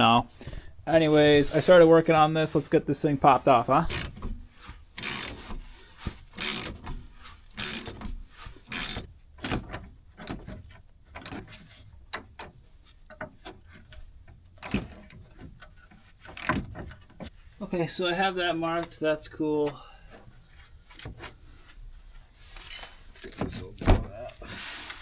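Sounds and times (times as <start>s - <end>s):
ratchet wrench ratcheting: 5.0s - 5.4s, 6.3s - 6.7s, 7.5s - 8.0s.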